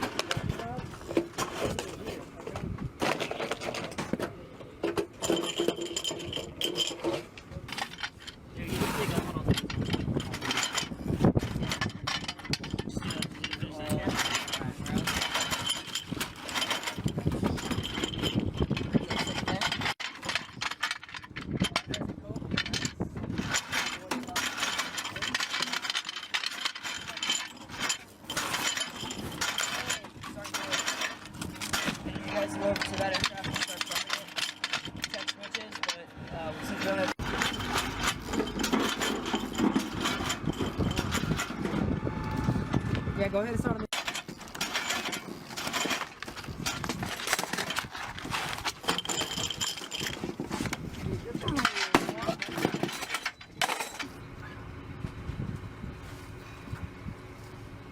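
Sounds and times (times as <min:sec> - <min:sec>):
metal hardware clicking and clanking: 0:00.0 - 0:42.8, 0:43.7 - 0:54.2
engine rumble: 0:50.7 - 0:57.9.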